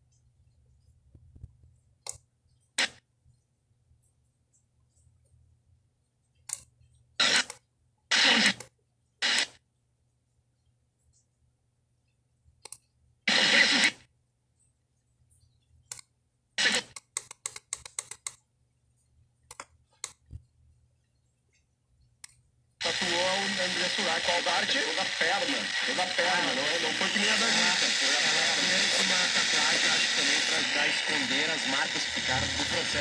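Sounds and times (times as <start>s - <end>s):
radio static bursts: 7.2s - 7.5s, 8.1s - 8.6s, 9.2s - 9.5s, 13.3s - 14.0s, 16.6s - 17.0s, 22.8s - 33.0s
radio stations snatches: 7.2s - 7.5s, 8.1s - 8.6s, 9.2s - 9.5s, 13.3s - 14.0s, 16.6s - 17.0s, 22.8s - 33.0s.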